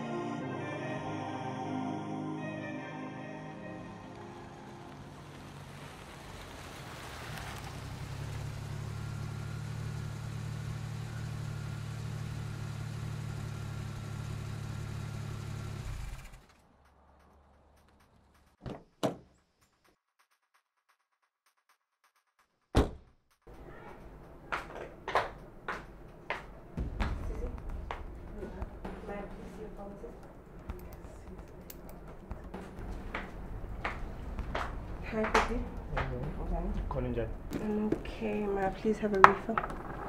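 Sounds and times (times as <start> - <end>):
car engine humming: 3.6 - 18.5, 23.5 - 40.0
car door shutting: 22.8 - 23.0
loud sharp thump: 22.8 - 23.1, 26.8 - 29.6.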